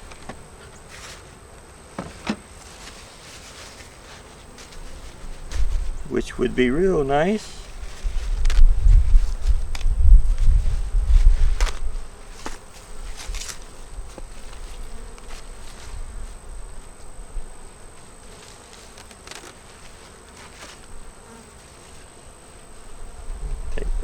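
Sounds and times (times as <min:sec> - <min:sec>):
honeybees buzzing: 0:00.0 - 0:24.0
rustles and clicks from handling: 0:07.6 - 0:10.5, 0:11.2 - 0:16.0, 0:18.3 - 0:21.0.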